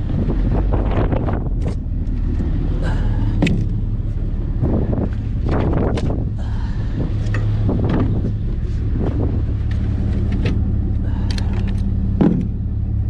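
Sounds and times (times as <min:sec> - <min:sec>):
vehicle engine humming: 0:00.0 - 0:13.0
knocks and clatters: 0:07.2 - 0:10.7, 0:11.4 - 0:12.6.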